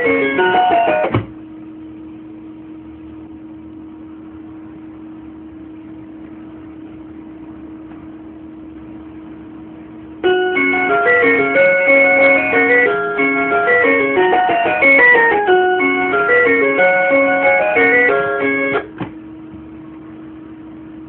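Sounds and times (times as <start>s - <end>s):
plucked keyboard-like melody: 0.0s - 1.2s, 10.2s - 18.9s.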